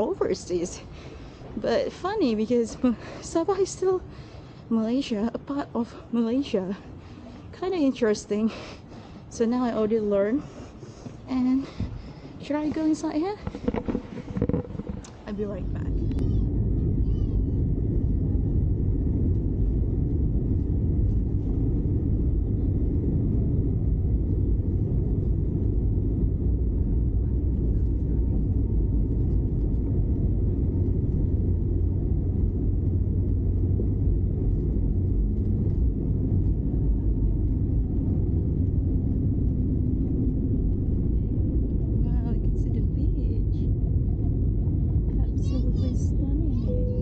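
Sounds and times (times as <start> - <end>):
car road and engine noise: 10.5 - 17.9, 20.3 - 47.0.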